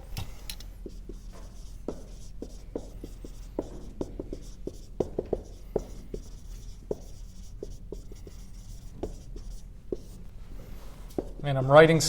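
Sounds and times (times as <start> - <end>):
marker squeaking on a board: 0.8 - 10.3.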